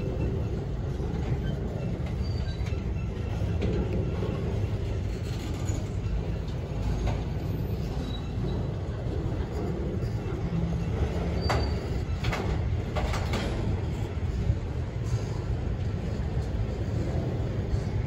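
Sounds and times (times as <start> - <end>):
train wheels rumbling on rail: 0.0 - 18.0
faint squeals and clicks: 0.1 - 14.0.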